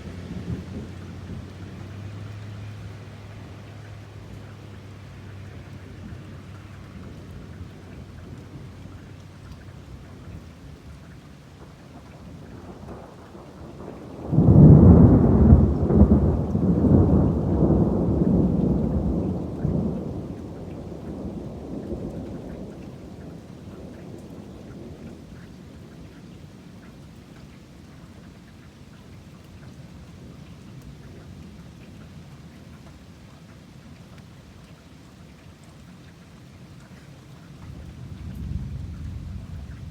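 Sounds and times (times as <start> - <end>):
thunderclap rumbling: 0.0 - 2.1, 6.0 - 26.2, 37.6 - 39.9
steady rain: 0.0 - 39.9.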